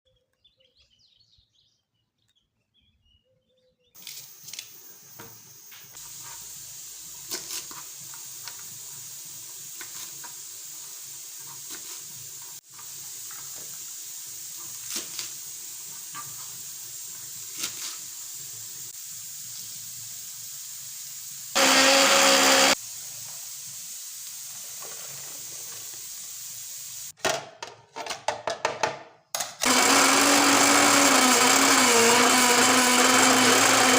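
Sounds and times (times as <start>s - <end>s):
steady hiss: 4.0s - 21.6s, 22.6s - 27.2s
electric blender running: 21.5s - 22.8s, 29.6s - 33.9s.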